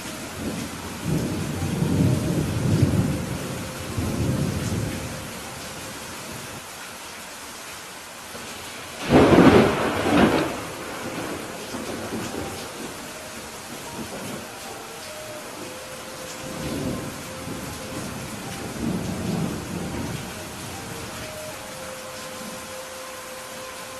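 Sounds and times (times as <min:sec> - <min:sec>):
steady rain falling: 0:00.0 - 0:23.9
rumble of thunder: 0:00.4 - 0:05.4, 0:09.0 - 0:14.5, 0:16.4 - 0:21.2
sharp thunderclap: 0:09.0 - 0:12.3.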